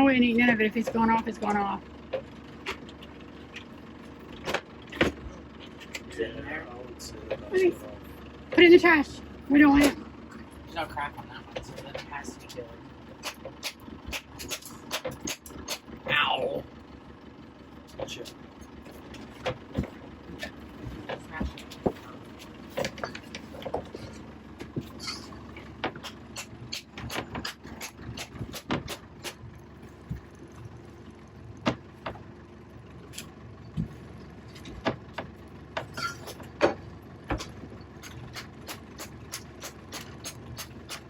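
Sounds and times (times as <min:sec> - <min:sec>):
tool knocking on coconut: 0:25.8 - 0:29.4.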